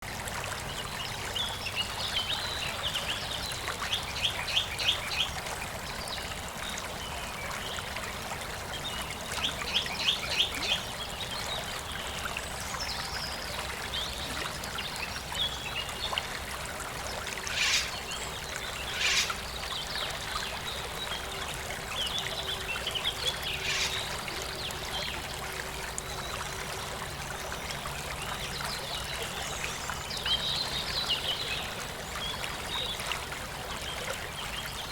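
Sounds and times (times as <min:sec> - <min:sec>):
water trickling in a stream: 0:00.0 - 0:34.9
birds calling: 0:17.2 - 0:20.0, 0:23.1 - 0:24.3.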